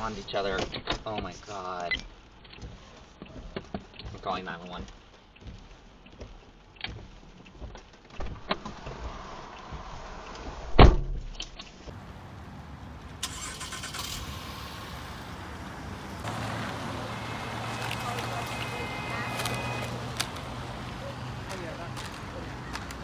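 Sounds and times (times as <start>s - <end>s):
vehicle running hum: 11.9s - 23.0s.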